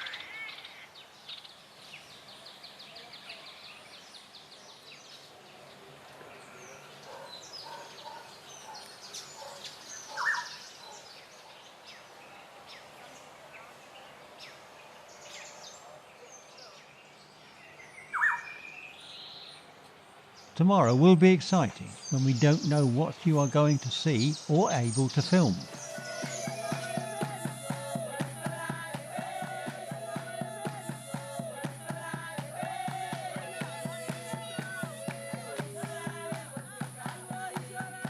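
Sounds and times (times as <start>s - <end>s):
wild birds calling and chirping: 5.6s - 12.8s, 20.6s - 38.0s
fast repeated high bird notes: 20.6s - 38.0s.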